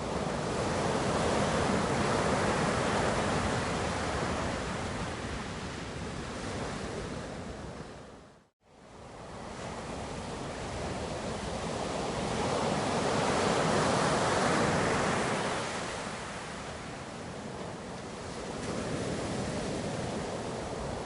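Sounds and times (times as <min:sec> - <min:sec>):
ocean surf breaking: 0:09.3 - 0:21.0.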